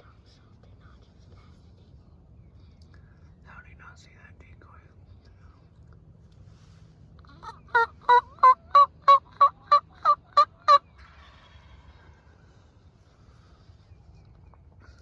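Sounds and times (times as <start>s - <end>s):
turkey yelps: 7.3s - 10.8s.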